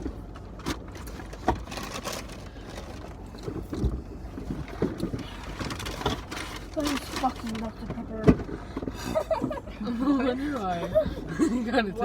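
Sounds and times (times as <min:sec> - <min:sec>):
food packaging rustling: 0:01.1 - 0:03.2.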